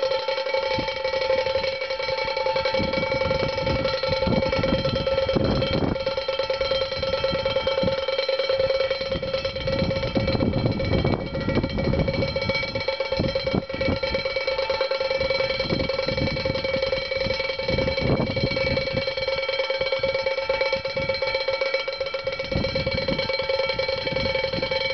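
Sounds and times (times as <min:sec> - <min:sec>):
metallic ring: 0:00.0 - 0:24.9
wind rumbling: 0:00.7 - 0:19.2.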